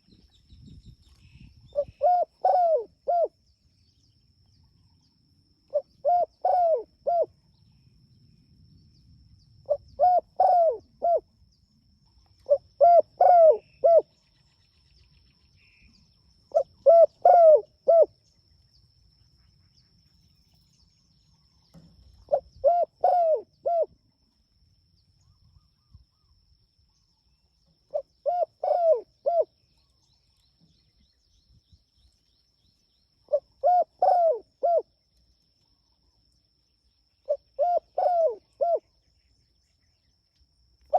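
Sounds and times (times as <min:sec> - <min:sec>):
dove cooing: 0:01.7 - 0:03.3, 0:05.7 - 0:07.3, 0:09.7 - 0:11.3, 0:12.4 - 0:14.1, 0:16.5 - 0:18.1, 0:22.2 - 0:23.9, 0:27.9 - 0:29.5, 0:33.3 - 0:34.9, 0:37.3 - 0:38.9.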